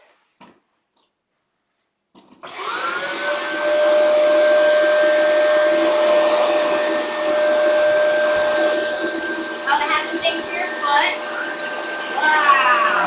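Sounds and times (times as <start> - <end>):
vacuum cleaner motor whine: 2.4 - 13.0
vacuum suction airflow: 2.9 - 13.0.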